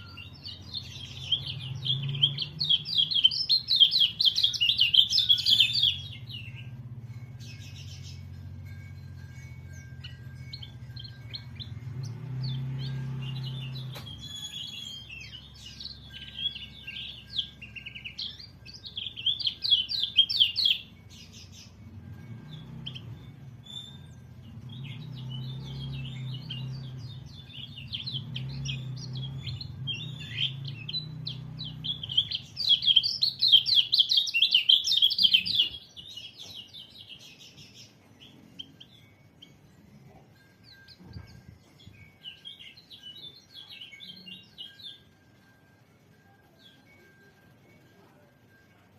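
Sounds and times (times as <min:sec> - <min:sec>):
bird chattering twitter: 0:00.0 - 0:06.8, 0:09.2 - 0:39.7.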